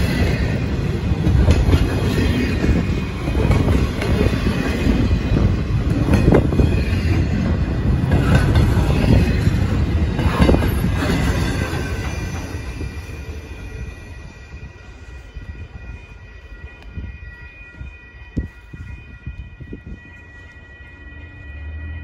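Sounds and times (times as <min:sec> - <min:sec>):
train cars clanking: 0:00.0 - 0:15.0
train wheels rumbling on rail: 0:00.0 - 0:22.0.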